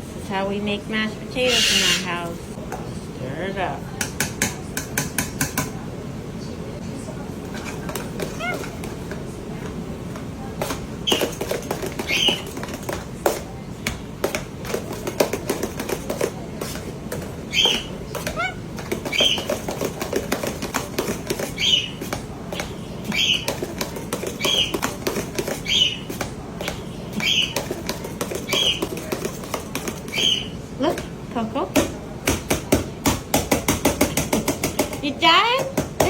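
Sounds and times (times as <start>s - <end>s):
masher knocking against pot: 31.8s - 36.0s.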